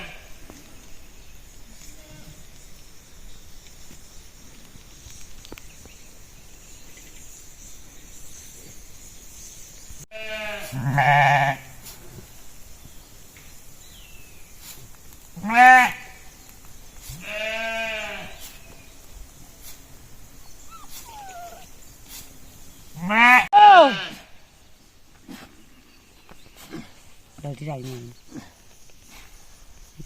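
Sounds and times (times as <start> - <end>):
sheep bleating: 10.1 - 11.7, 15.4 - 16.0, 17.2 - 18.3, 23.0 - 24.3.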